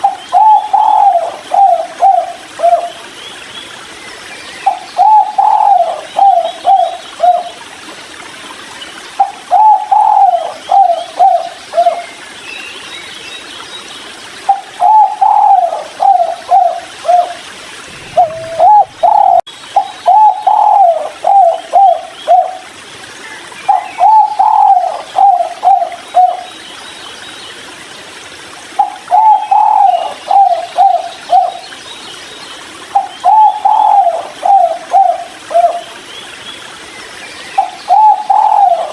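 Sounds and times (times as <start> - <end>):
dove cooing: 0.0 - 3.0, 4.7 - 7.5, 9.2 - 12.0, 14.5 - 22.7, 23.7 - 26.4, 28.8 - 31.6, 32.9 - 35.8, 37.6 - 38.9.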